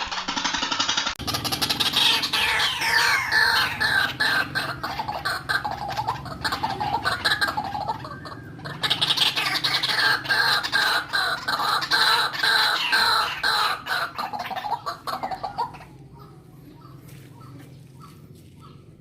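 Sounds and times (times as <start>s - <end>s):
waterhen calling harsh notes: 1.2s - 16.0s.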